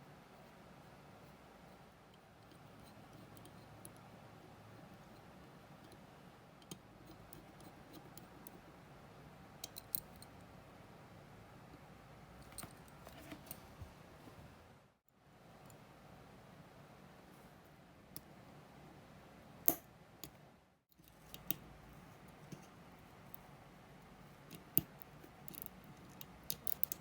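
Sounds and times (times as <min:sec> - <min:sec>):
small metal tools clicking: 0:24.5 - 0:27.0.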